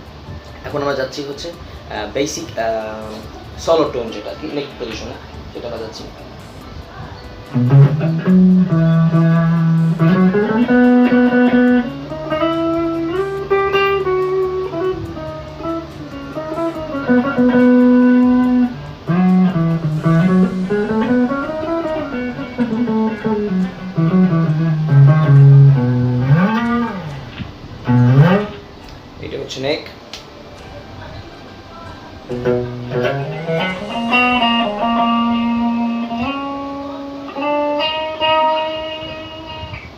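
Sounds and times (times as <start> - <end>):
clean electric guitar lead solo: 7.5 - 28.8, 32.3 - 39.9.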